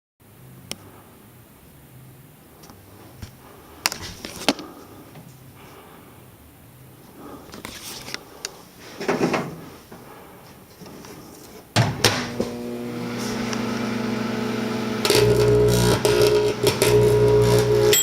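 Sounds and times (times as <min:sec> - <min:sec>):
handling rustle: 0:07.5 - 0:09.9
microwave oven humming: 0:11.8 - 0:18.0.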